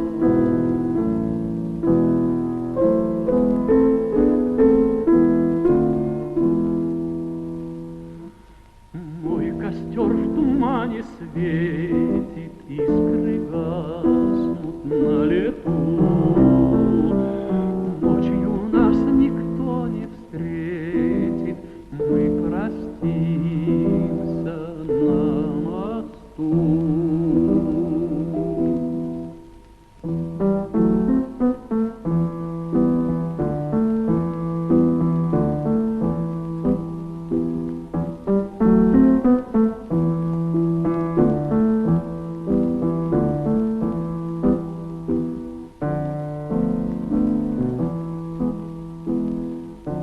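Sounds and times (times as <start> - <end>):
instrumental accompaniment: 0.0 - 50.0
solo piano playing: 0.0 - 50.0
tenor singing with vibrato: 8.9 - 29.3.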